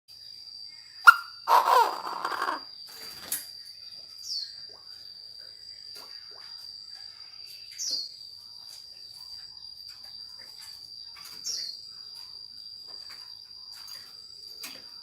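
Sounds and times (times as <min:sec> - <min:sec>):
insect trill: 0:00.1 - 0:15.0
bird calling: 0:01.1 - 0:02.6.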